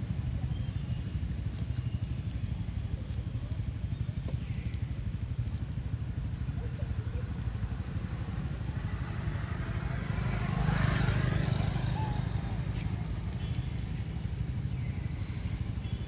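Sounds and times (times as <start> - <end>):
road traffic rumble: 0.0 - 16.0
motorbike passing: 6.2 - 16.0.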